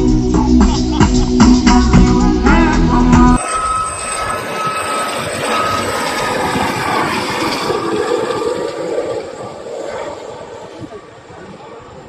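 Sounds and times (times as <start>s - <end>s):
music: 0.0s - 3.4s
aircraft engine in flight: 3.4s - 12.0s.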